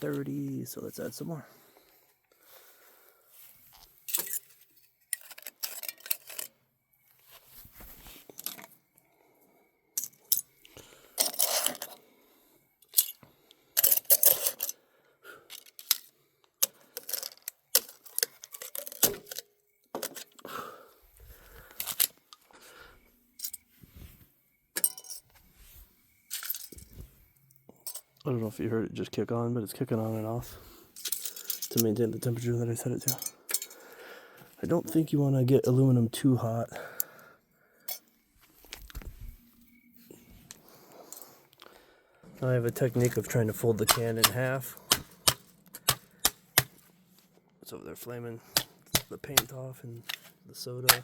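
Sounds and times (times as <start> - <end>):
metallic clinks and scrapes: 3.7 - 6.6, 7.4 - 8.8, 10.0 - 12.0, 12.8 - 14.8, 15.5 - 20.5, 21.7 - 22.5, 23.3 - 24.1, 24.8 - 25.4, 26.2 - 28.2, 30.9 - 32.4, 33.0 - 33.8, 37.8 - 41.4
aluminum cans crunching: 42.8 - 46.8, 48.5 - 51.0.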